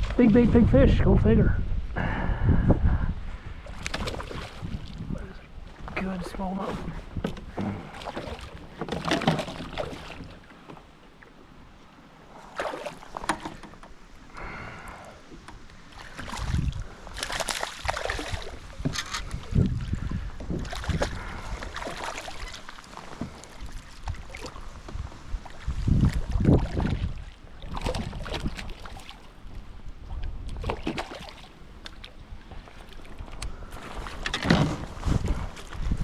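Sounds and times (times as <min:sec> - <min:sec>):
wind gusting against microphone: 0:00.0 - 0:08.0, 0:15.8 - 0:22.0, 0:23.6 - 0:28.8, 0:33.2 - 0:36.0.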